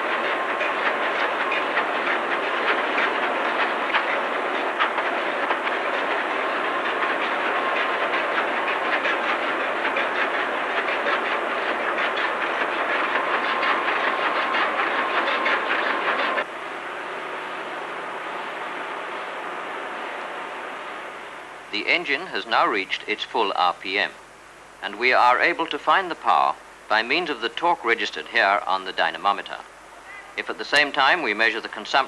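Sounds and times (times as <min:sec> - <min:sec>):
large diesel engine clattering: 0:00.0 - 0:16.5
faint steady whine: 0:00.0 - 0:32.0.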